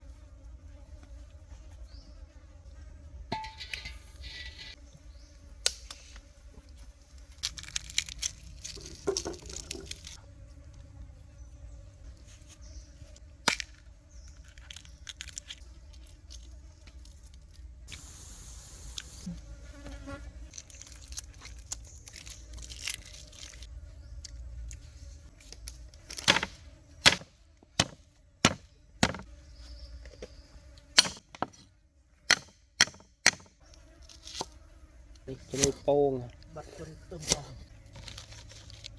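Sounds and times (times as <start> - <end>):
insects buzzing: 0.0 - 38.9
knife chopping on a board: 27.8 - 29.2.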